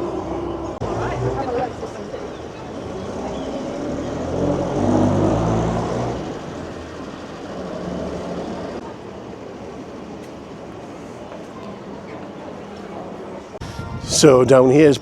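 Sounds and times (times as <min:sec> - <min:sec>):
motor vehicle passing: 0:00.0 - 0:08.9.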